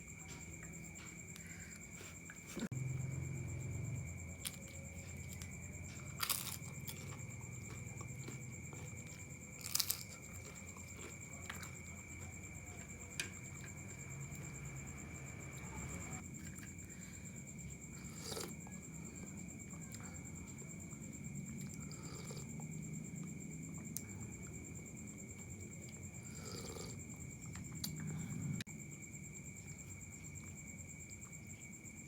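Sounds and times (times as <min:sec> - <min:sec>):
quiet chewing: 0:00.0 - 0:03.2, 0:04.3 - 0:28.7
steady low hum: 0:00.0 - 0:32.0
sharp crunches: 0:04.4 - 0:07.2, 0:08.2 - 0:11.7
faint high whine: 0:13.0 - 0:16.2.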